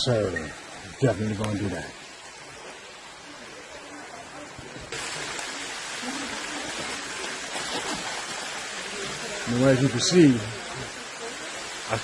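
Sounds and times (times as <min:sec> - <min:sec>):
faint water noise: 0:00.0 - 0:12.0
outdoor hiss: 0:00.0 - 0:12.0.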